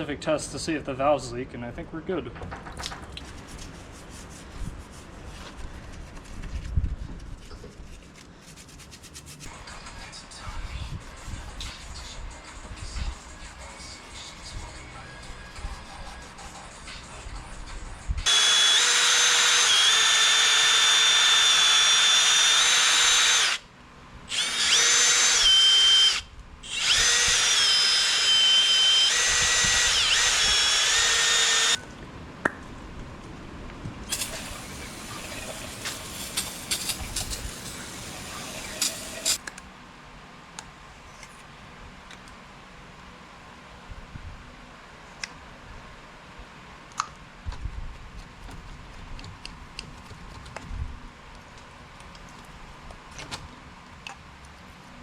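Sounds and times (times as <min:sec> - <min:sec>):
power tool motor whine: 0:18.2 - 0:23.6, 0:24.3 - 0:31.8.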